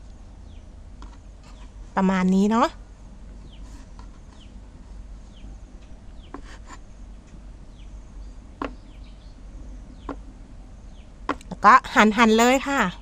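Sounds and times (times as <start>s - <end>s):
birds chirping: 0.0s - 2.7s, 3.3s - 13.0s.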